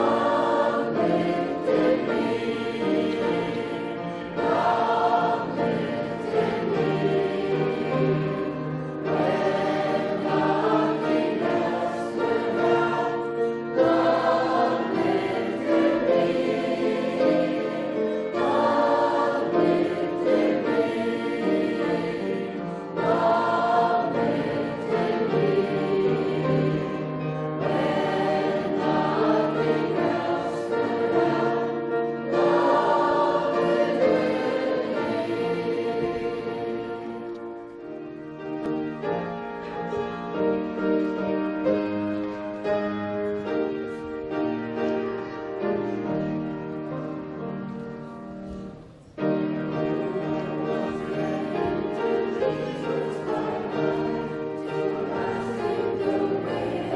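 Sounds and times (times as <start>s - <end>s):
church choir singing a hymn: 0.0s - 56.9s.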